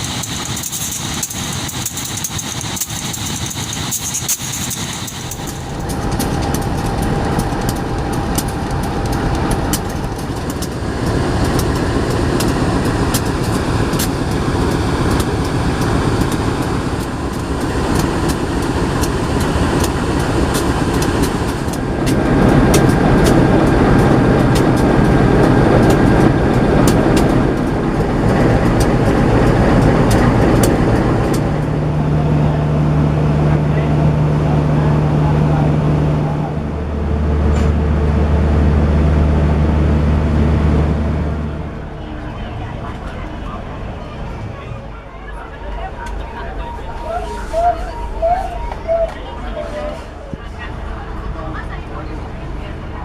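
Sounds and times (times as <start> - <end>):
wheels clicking and rattling: 0.0 - 32.6
train rumbling on rails: 0.0 - 53.0.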